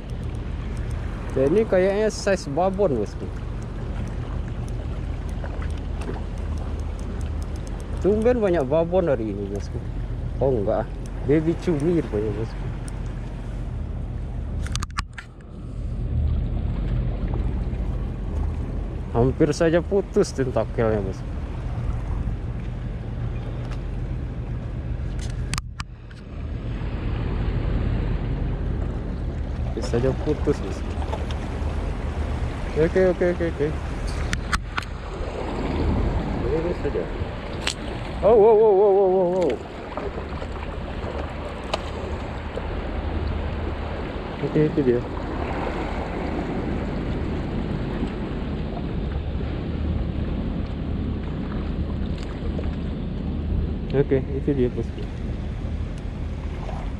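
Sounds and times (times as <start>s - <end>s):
sharp clicks: 0.0s - 1.4s, 3.6s - 8.7s
boat engine droning: 0.0s - 56.9s
sea noise: 0.0s - 56.9s
wind: 0.0s - 56.9s.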